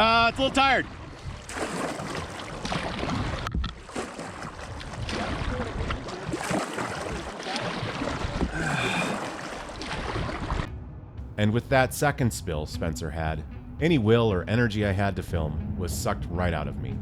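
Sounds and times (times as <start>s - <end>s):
water splashing: 0.0s - 10.7s.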